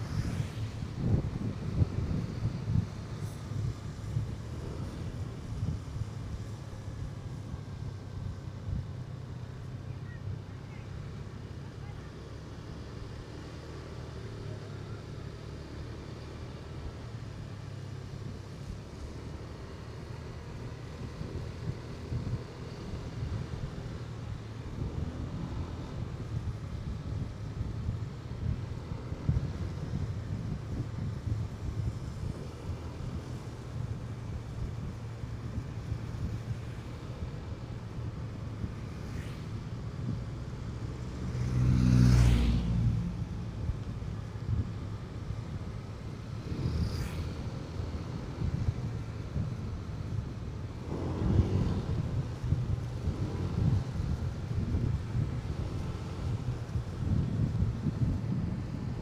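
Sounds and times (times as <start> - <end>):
motorcycle engine drone: 0.0 - 59.0
road and wind noise: 0.0 - 59.0
motorcycle engine running: 43.6 - 59.0.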